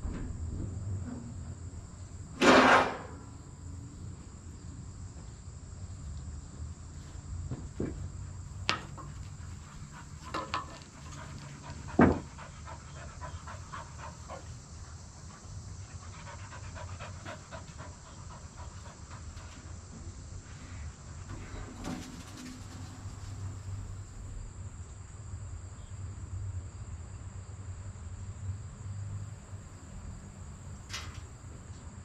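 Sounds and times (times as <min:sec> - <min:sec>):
dog panting: 0:09.0 - 0:19.8.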